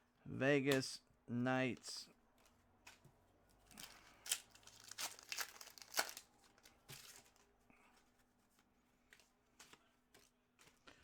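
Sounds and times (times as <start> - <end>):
foil wrapper crinkling and tearing: 3.7 - 7.4.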